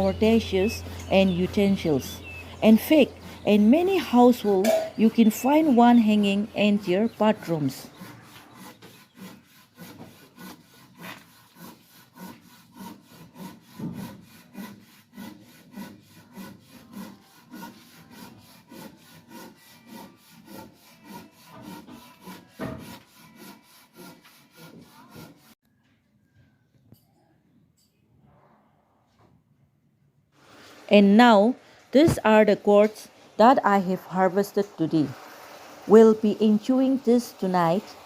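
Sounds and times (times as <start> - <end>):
loofah scrubbing a dish: 0.0 - 25.6.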